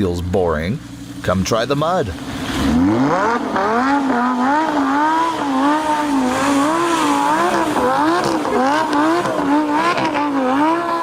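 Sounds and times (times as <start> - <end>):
vehicle engine revving hard: 2.2 - 11.0.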